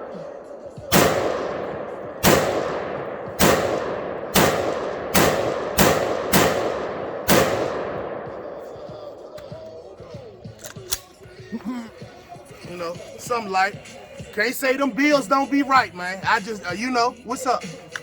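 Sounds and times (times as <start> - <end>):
rifle shots echoing: 0.0 - 11.2.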